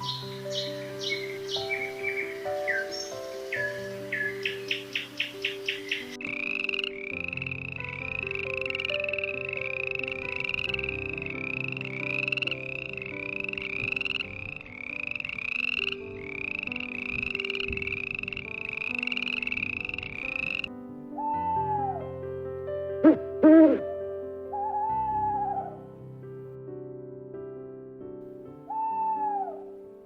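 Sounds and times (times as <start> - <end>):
frog croaking: 0.0 - 22.0
soft background music: 0.0 - 30.0.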